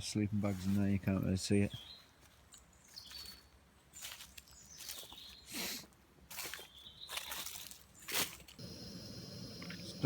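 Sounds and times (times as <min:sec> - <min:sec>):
rustling and crunching leaf litter: 0:04.0 - 0:08.6.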